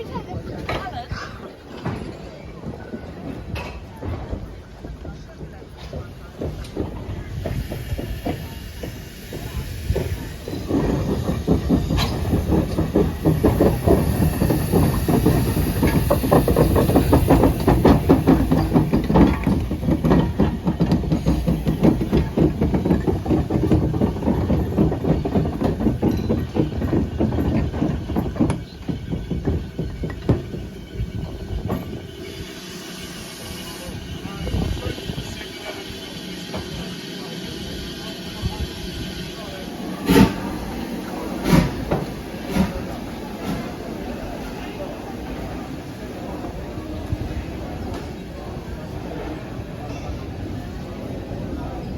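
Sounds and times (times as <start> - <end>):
train wheels clattering on rails: 0.0 - 51.9
hiss of steam: 6.8 - 26.0, 28.4 - 47.8.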